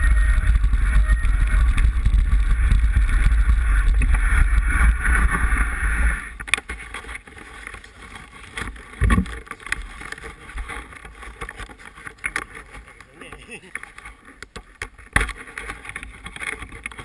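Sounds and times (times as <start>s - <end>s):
wind buffeting camera: 0.0s - 7.0s, 8.6s - 13.0s
bike rumble: 0.0s - 17.0s
clicks and rattles: 6.4s - 17.0s.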